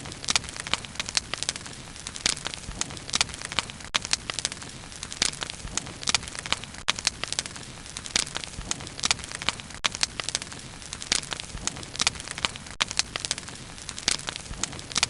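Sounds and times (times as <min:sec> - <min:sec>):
bonfire crackling: 0:00.0 - 0:15.0.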